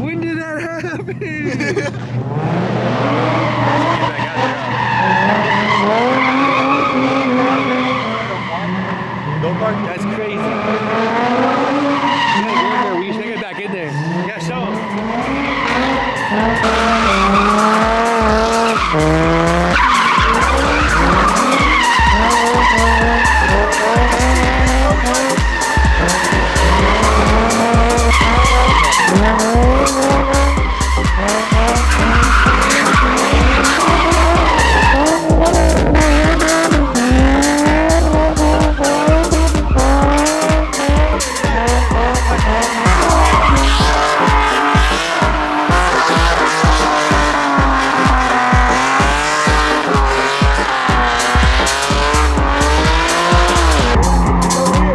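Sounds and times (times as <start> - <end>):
car engines revving: 0.0 - 54.9
tires skidding: 1.7 - 54.9
music with heavy bass: 3.6 - 7.3, 12.7 - 54.9.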